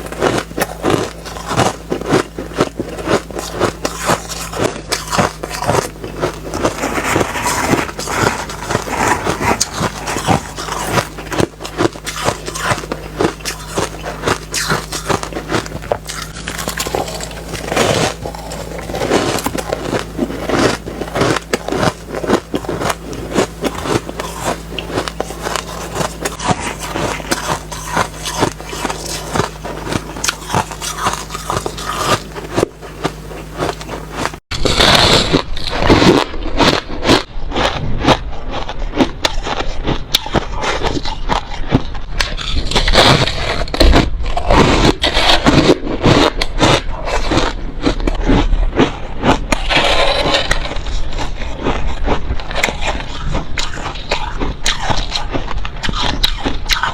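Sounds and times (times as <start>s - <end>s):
chewing ice crunches: 0.0s - 56.9s
low hum: 0.0s - 56.9s.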